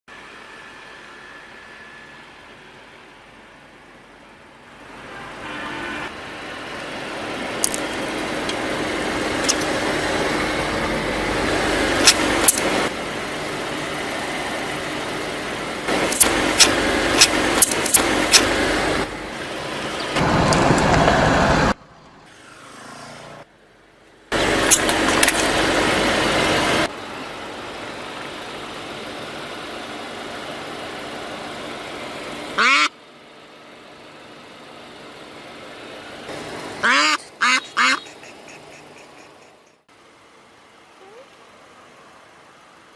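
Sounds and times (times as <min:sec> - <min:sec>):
sharp cracks and crunches: 0:07.6 - 0:08.0, 0:16.0 - 0:18.5, 0:24.6 - 0:25.6.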